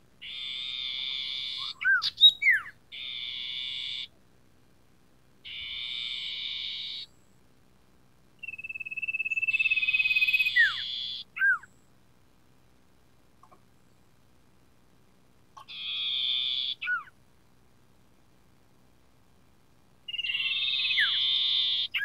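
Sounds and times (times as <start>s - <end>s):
harsh buzzing bird churrs: 0.2s - 4.1s, 5.4s - 7.1s, 8.4s - 11.6s, 15.6s - 17.1s, 20.1s - 22.0s.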